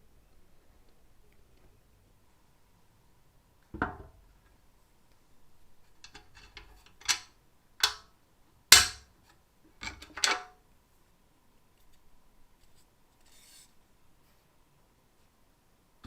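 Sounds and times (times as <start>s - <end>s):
metal parts knocking and clacking: 6.0s - 8.0s, 8.7s - 9.0s, 9.8s - 10.5s.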